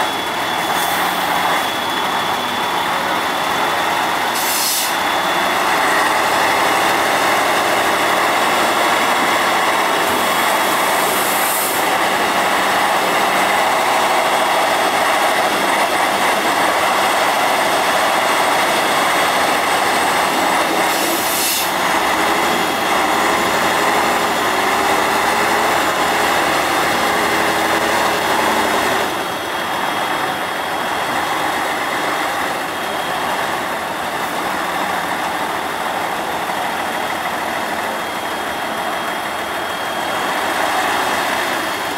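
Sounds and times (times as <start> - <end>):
diesel truck engine running: 0.0 - 41.9
short air hisses: 4.3 - 5.0, 20.9 - 21.8.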